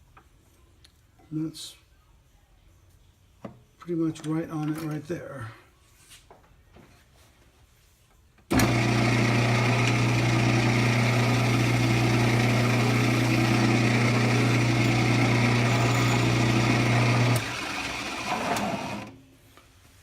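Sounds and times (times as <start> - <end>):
wood lathe motor humming: 8.5 - 19.1.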